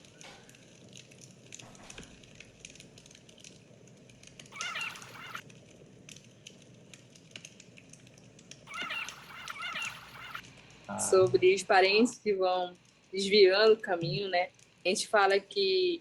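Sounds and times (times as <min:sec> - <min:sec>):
faint scattered clicks: 0:00.0 - 0:10.8
bird calling: 0:04.5 - 0:05.4, 0:08.7 - 0:10.4.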